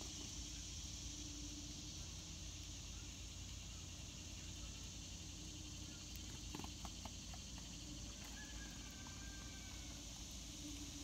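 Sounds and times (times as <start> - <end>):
steady high hiss: 0.0 - 11.0
small birds clicking: 4.5 - 11.0.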